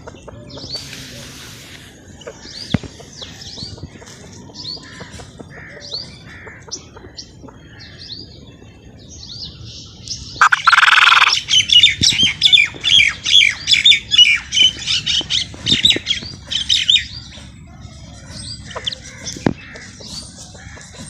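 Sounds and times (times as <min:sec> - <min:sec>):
birds chattering: 0:00.0 - 0:21.0
bird squawk: 0:10.4 - 0:11.4.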